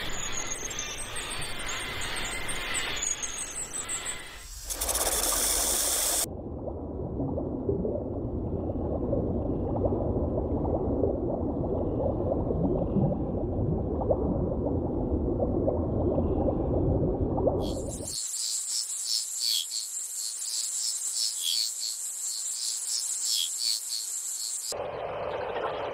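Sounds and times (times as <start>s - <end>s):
muffled underwater bubbling: 6.3s - 18.1s.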